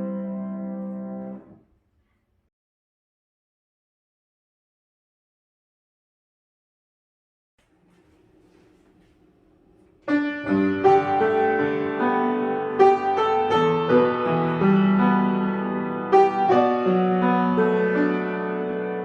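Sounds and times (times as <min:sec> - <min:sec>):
piano piece: 0:00.0 - 0:01.6, 0:09.3 - 0:19.0.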